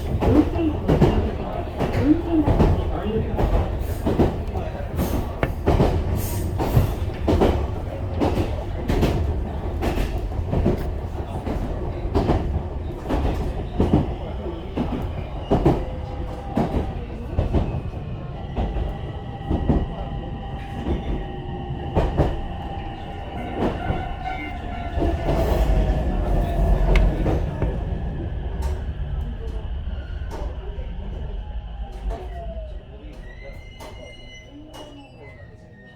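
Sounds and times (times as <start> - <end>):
train rumble: 0.0 - 35.9.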